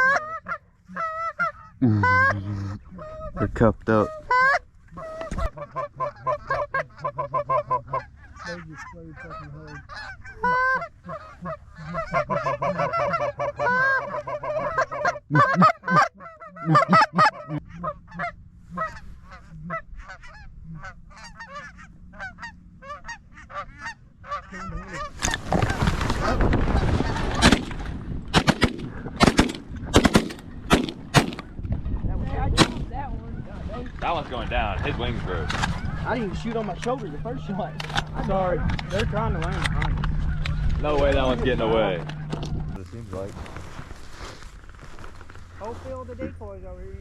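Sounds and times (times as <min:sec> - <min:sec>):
geese honking: 0:00.0 - 0:31.2, 0:32.6 - 0:42.8
shotgun shots: 0:27.1 - 0:31.5, 0:32.5 - 0:32.9.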